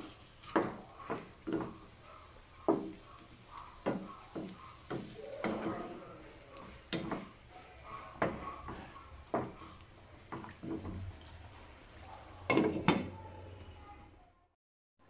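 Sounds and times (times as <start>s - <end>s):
wooden spatula knocking on frying pan: 0.4s - 5.8s, 6.6s - 11.0s, 12.5s - 13.2s.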